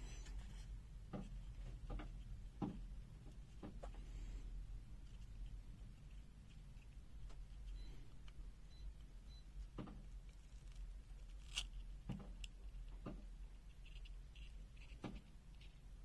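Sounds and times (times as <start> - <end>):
clicks of small plastic parts: 9.8 - 15.8.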